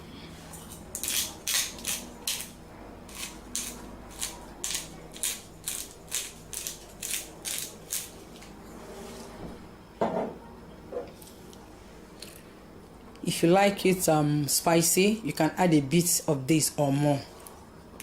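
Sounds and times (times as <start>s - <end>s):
spice grinder rasping crunches: 0.6s - 8.2s.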